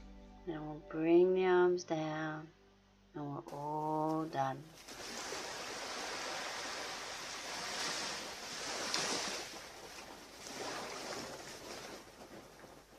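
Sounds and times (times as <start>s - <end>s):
ocean surf washing onto beach: 4.8s - 12.9s.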